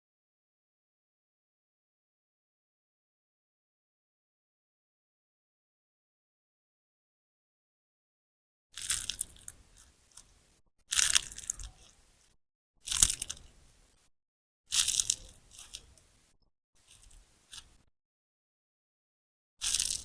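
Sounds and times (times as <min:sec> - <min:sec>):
slime sponge squelching: 0:14.7 - 0:17.8, 0:19.6 - 0:20.0.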